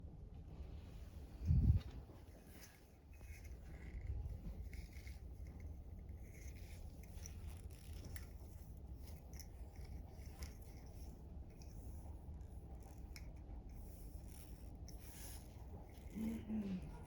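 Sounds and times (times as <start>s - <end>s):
steady low rumble: 0.0s - 17.0s
handling clicks and scrapes: 1.4s - 17.0s.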